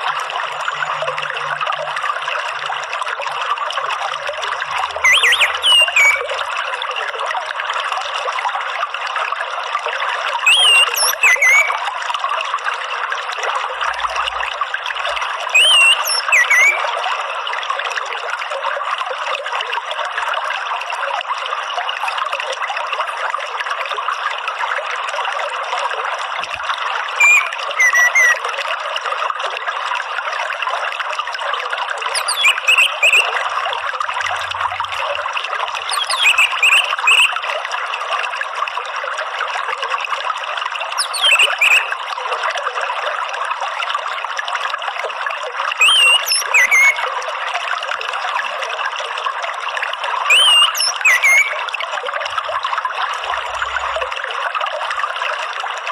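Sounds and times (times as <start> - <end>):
running water trickling: 0.0 - 55.9
thrush chirping: 5.0 - 6.3, 27.2 - 28.4, 32.2 - 33.4, 35.9 - 37.4, 41.0 - 41.9.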